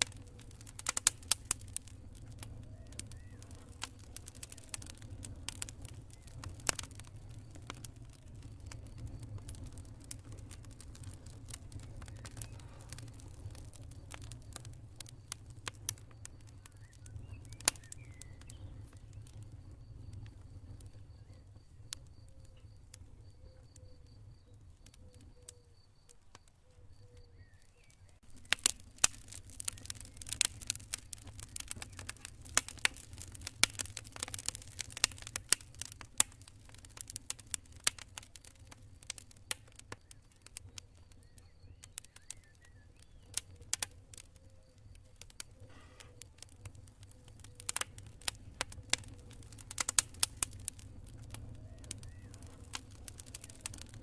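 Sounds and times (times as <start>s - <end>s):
campfire wood crackling: 0.0s - 54.0s
low rumble of flames: 0.0s - 54.0s.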